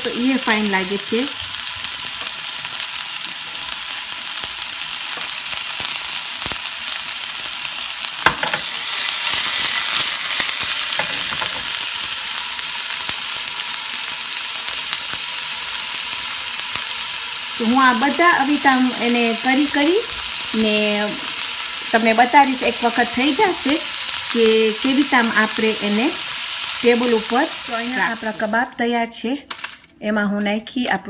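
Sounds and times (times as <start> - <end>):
meat sizzling in a frying pan: 0.0 - 28.8
sharp knock of pan: 8.2 - 8.7.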